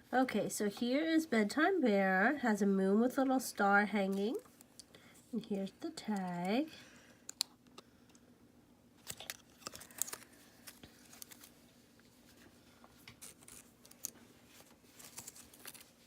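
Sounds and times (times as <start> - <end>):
packaging rustling and crinkling: 9.0 - 16.0.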